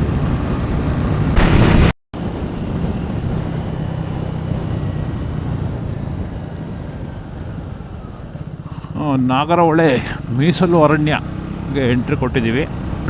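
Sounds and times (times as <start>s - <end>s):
motorcycle engine: 10.2s - 13.0s.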